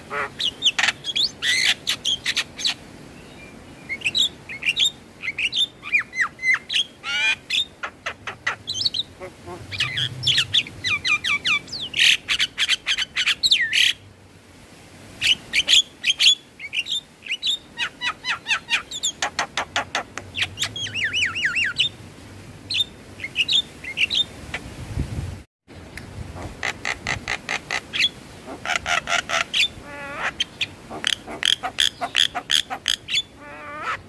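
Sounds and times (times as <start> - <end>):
birds chattering and whistling: 0.1 - 13.9, 27.9 - 34.0.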